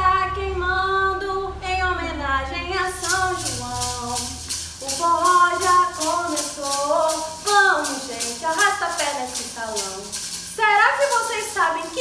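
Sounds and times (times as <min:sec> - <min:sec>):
person singing melody: 0:00.0 - 0:10.3
shaker rhythm: 0:02.8 - 0:12.0.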